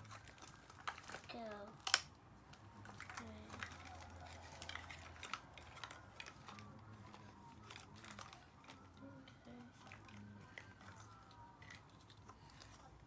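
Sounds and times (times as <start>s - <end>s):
plastic toy pieces clicking: 0.2s - 2.1s.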